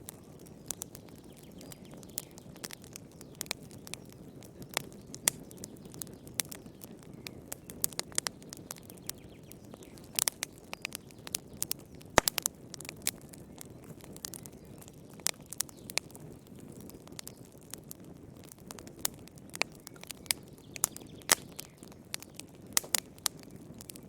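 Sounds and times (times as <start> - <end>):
fire crackling and popping: 0.0 - 24.0
low rush of flames: 0.0 - 24.0.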